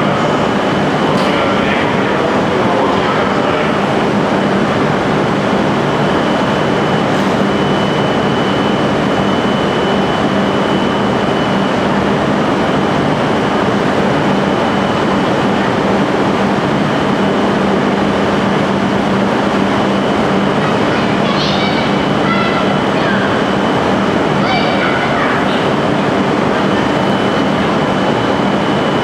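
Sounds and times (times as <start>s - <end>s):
train equipment humming: 0.0s - 29.0s
thin high whine: 19.6s - 29.0s.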